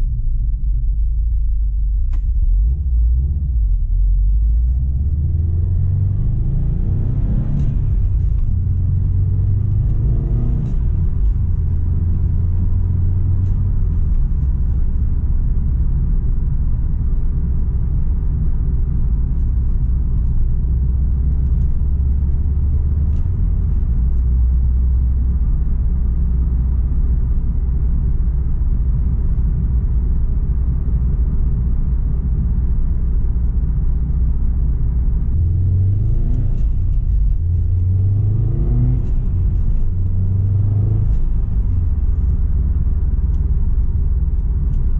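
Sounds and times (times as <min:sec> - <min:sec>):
car engine rumbling while driving: 0:00.0 - 0:44.9.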